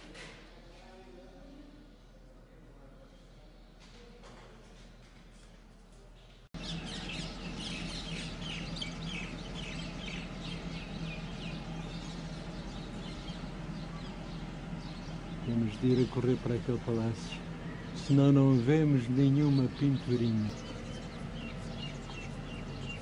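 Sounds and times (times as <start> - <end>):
steady low hum: 4.9 - 23.0
birds chirping: 6.6 - 23.0.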